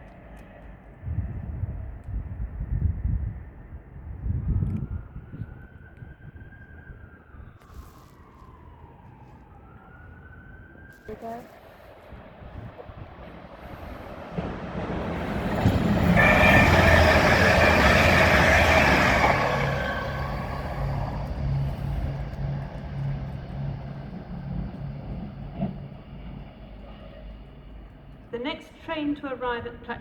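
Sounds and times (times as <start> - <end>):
train passing: 9.9 - 30.0
pulsing hum: 15.1 - 28.3.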